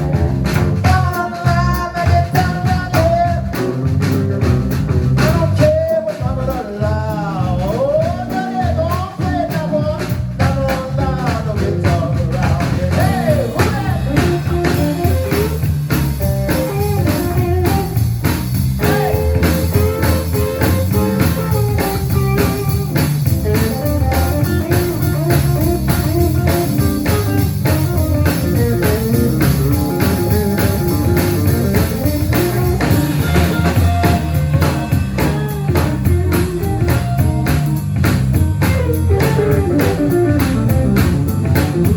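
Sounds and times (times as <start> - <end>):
electric guitar: 0.0 - 5.7, 11.0 - 41.9
drum kit beat: 0.0 - 41.9
live blues band: 0.0 - 41.9.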